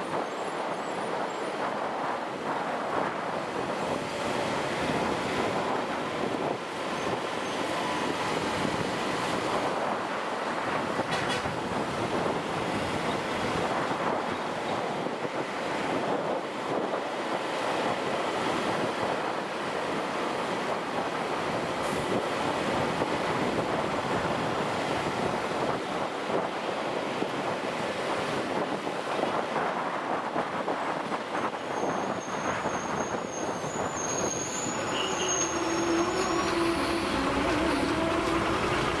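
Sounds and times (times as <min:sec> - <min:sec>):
wind rush: 0:00.0 - 0:39.0
motorcycle road noise: 0:34.7 - 0:39.0.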